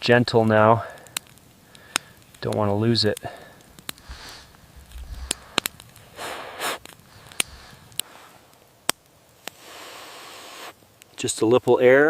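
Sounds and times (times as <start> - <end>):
tinder crackling snaps: 0.0 - 11.9
air blown over ember: 3.2 - 8.6, 9.4 - 10.8.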